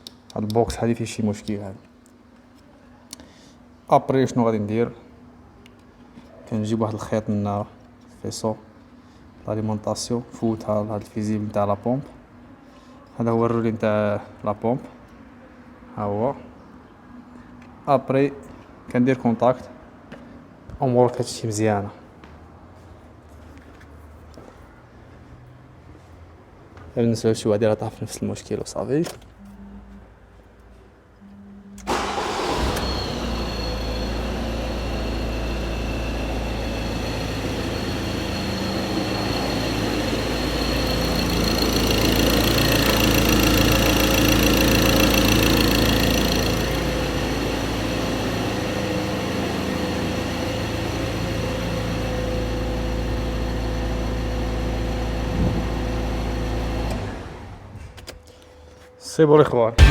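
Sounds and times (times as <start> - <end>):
diesel engine starting and idling: 31.8 - 55.2.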